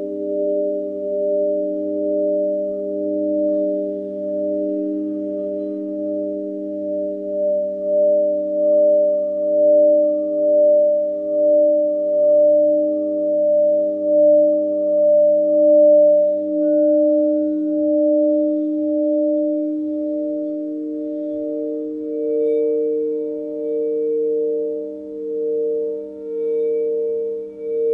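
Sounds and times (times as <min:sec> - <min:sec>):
faint higher tone: 0:00.0 - 0:27.9
sustained healing tones: 0:17.6 - 0:27.9.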